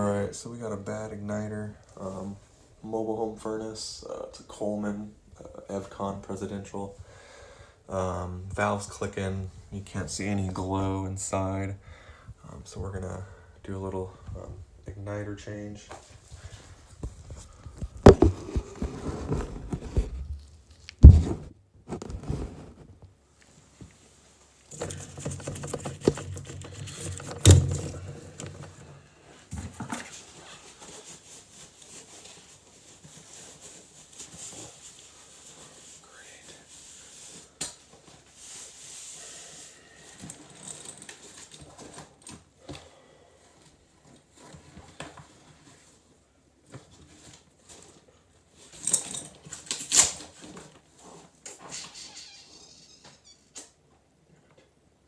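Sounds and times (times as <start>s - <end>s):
loud thumps: 18.0s - 18.8s, 21.0s - 21.5s
knocks clicks and rattles: 24.7s - 28.8s.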